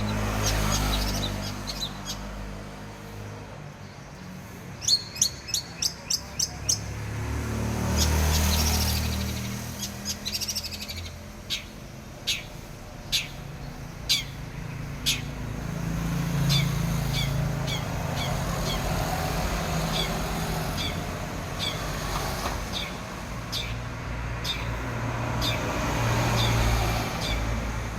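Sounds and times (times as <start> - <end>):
bird rattling trill and chirps: 7.9 - 15.4.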